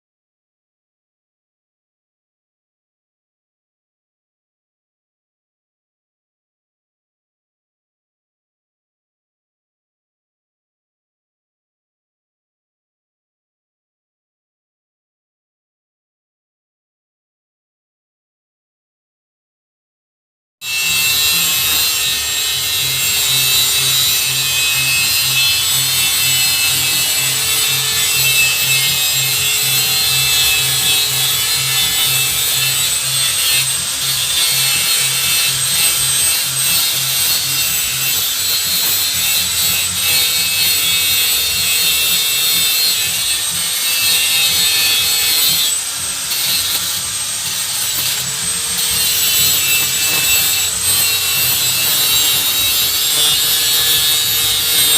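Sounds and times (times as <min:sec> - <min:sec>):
power tool cutting with whine: 0:20.6 - 0:54.9.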